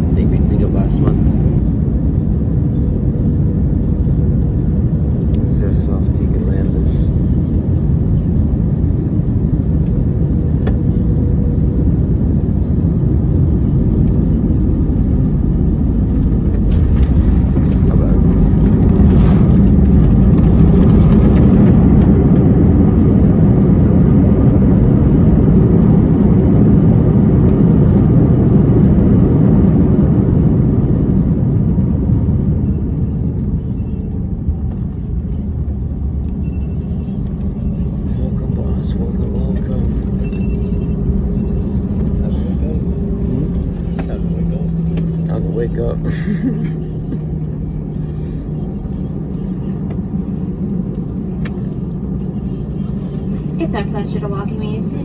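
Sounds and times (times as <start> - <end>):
jet engines rumbling in cabin: 0.0 - 55.0.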